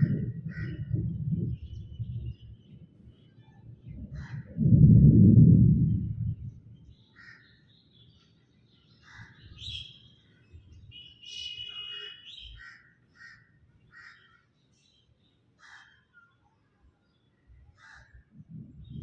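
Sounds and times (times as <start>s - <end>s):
birds calling: 6.9s - 16.5s.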